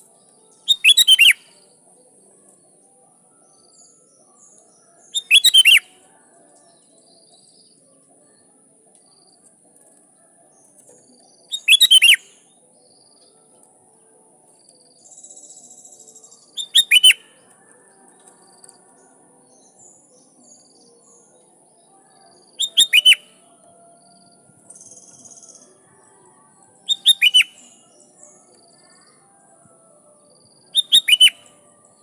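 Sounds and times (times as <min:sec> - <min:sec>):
bird singing bubbly phrases: 0:11.5 - 0:12.2, 0:22.6 - 0:23.2.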